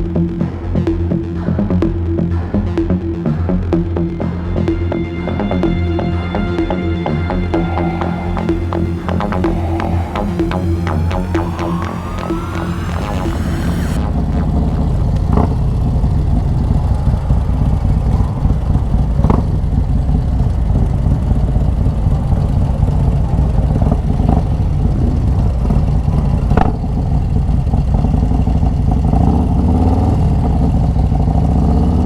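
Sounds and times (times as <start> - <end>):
motorcycle engine running: 14.0 - 32.0.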